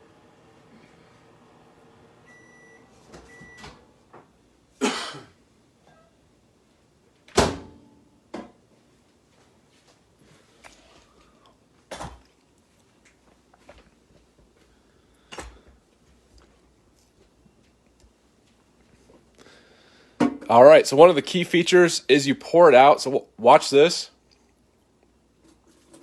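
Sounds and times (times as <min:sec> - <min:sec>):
microwave oven beeping: 0:00.0 - 0:04.0.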